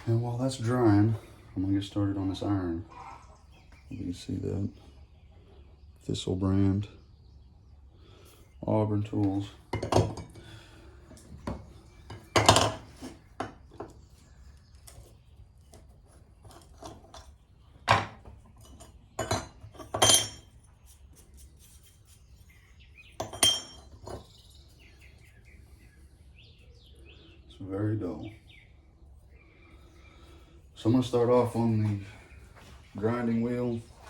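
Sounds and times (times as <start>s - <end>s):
metal tools clinking on workbench: 12.1s - 13.5s, 17.9s - 20.6s, 23.2s - 24.3s.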